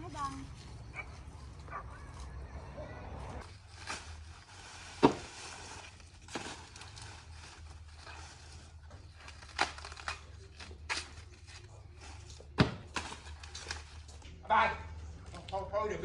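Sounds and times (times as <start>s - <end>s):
dry corn leaves rustling: 3.4s - 14.3s.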